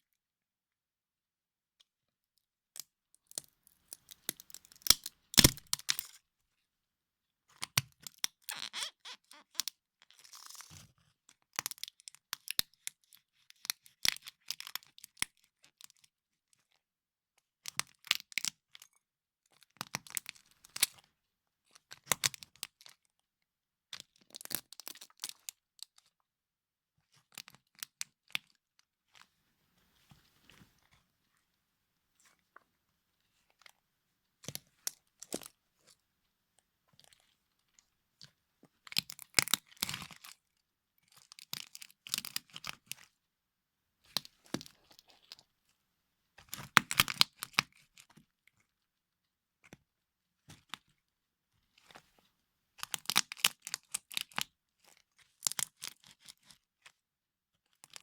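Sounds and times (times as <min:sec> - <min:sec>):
plastic toy cars cracking underfoot: 0:04.2 - 0:06.0.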